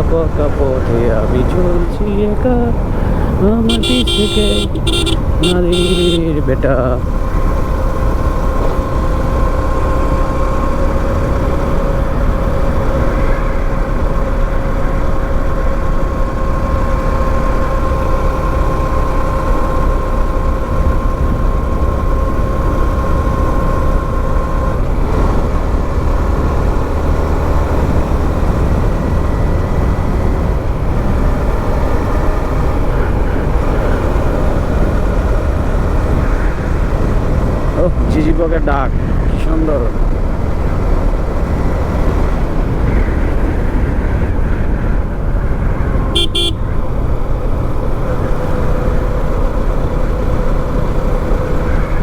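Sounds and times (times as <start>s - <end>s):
motorcycle engine: 0.0s - 38.0s, 39.0s - 52.0s
steady high tone: 3.7s - 7.0s
wind rumble on microphone: 4.8s - 52.0s.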